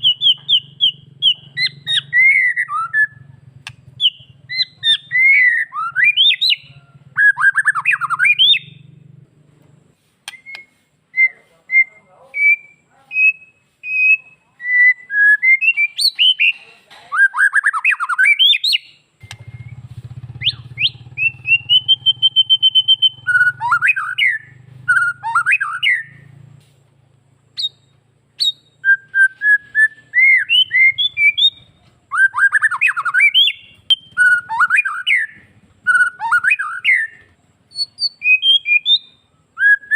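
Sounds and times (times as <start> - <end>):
bird singing whistled song: 0.0 - 9.0, 10.2 - 26.5, 27.4 - 39.9.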